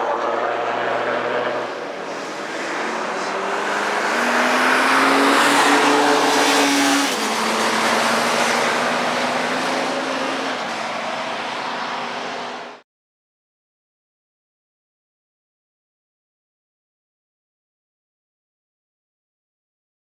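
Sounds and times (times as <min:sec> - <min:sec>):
motorcycle engine at speed: 0:00.5 - 0:12.8.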